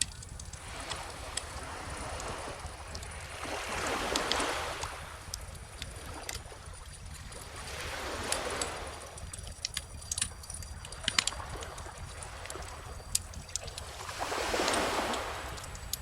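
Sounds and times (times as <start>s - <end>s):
bonfire crackling: 0.0s - 3.1s, 8.2s - 16.0s
ocean waves washing in: 11.0s - 16.0s.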